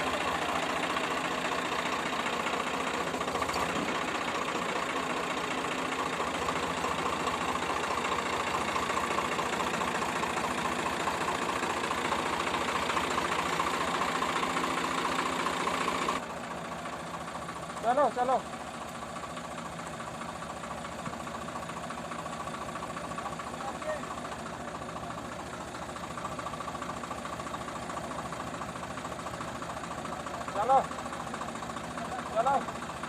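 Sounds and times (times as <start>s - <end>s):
crusher machinery: 0.0s - 16.2s
tractor diesel engine knocking: 0.0s - 33.0s.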